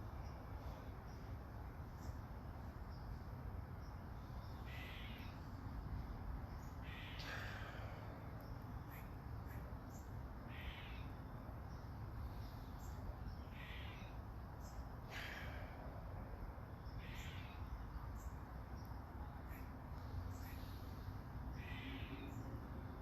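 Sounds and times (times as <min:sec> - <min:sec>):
bird short calls: 0:06.8 - 0:07.7, 0:10.5 - 0:11.1, 0:13.4 - 0:14.2, 0:17.0 - 0:17.7, 0:21.6 - 0:22.4.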